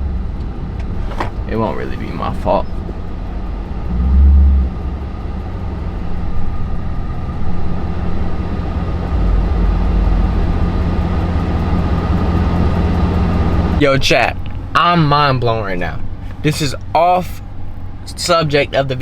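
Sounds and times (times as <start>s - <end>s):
car exhaust droning: 0.0s - 19.0s.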